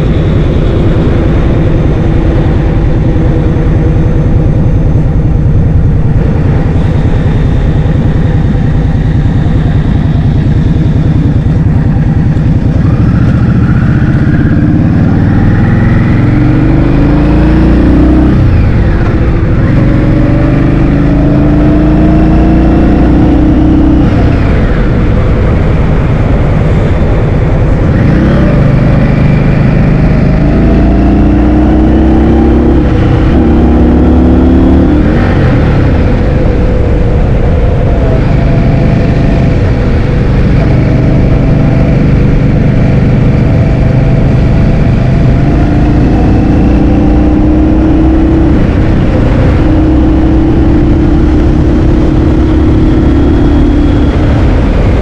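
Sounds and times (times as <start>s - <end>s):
scooter engine: 0.0s - 21.0s.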